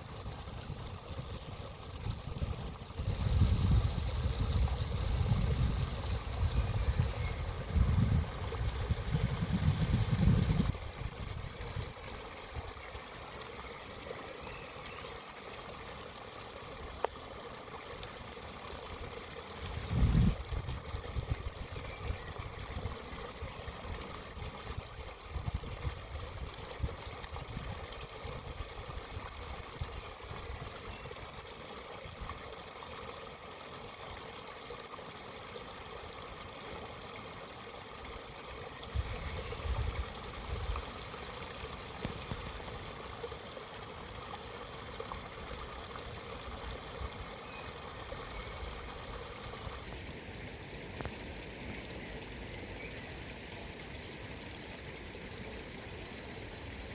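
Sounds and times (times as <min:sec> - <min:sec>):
stream flowing and trickling: 0:00.0 - 0:56.9.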